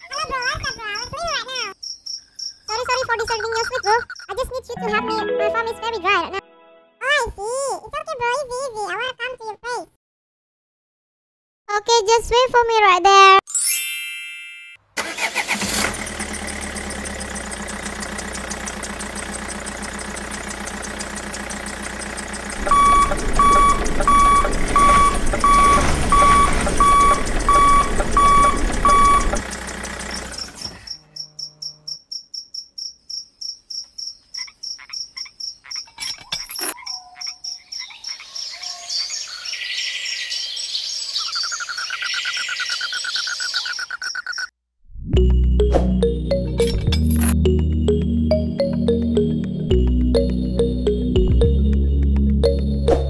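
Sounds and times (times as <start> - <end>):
chirps: 0.2 - 4.5, 33.1 - 44.5
tractor engine running: 15.0 - 30.9, 45.2 - 53.0
repeating beep: 22.7 - 29.4.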